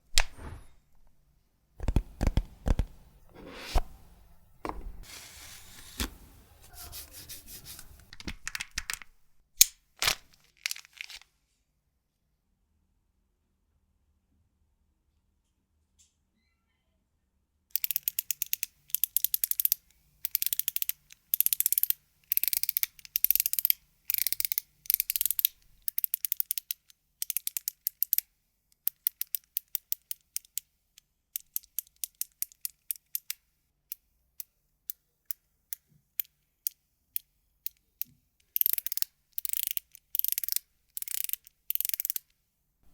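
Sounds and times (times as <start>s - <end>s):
fidget toy clicking: 17.7s - 30.7s, 31.4s - 42.3s.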